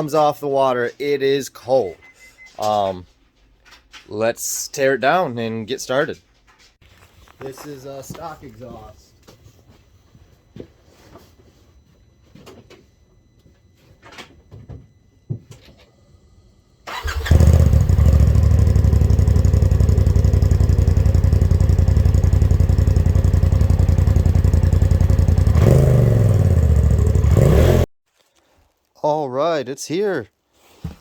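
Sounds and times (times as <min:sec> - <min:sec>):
engine running loud: 0:17.1 - 0:27.8.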